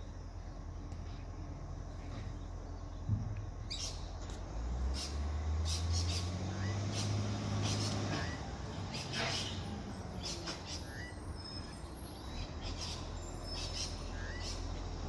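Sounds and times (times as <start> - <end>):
garbage truck engine revving: 4.5 - 13.6.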